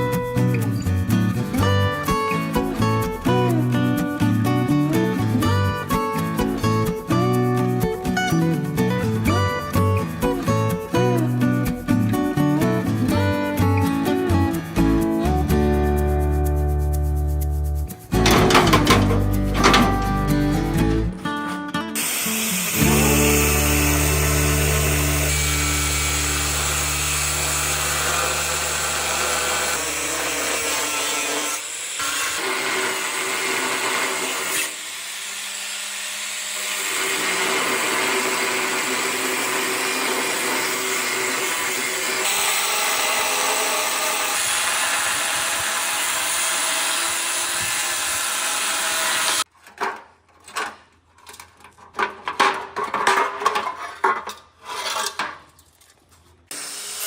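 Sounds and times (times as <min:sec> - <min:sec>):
power tool cutting: 0:22.0 - 0:49.5, 0:56.5 - 0:57.0.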